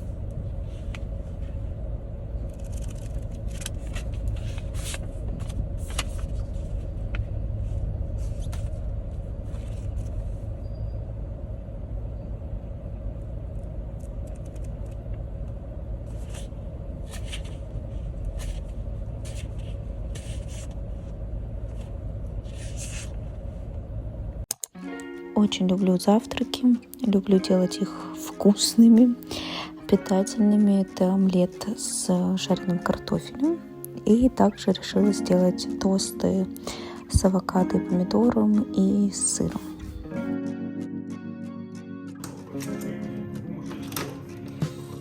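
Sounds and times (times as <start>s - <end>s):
vehicle rumble from inside: 0.0s - 24.5s.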